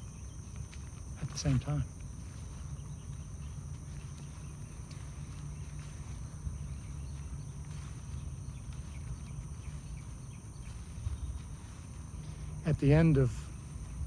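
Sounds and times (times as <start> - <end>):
faint chirps: 0.0 - 14.0
insects droning: 0.0 - 14.0.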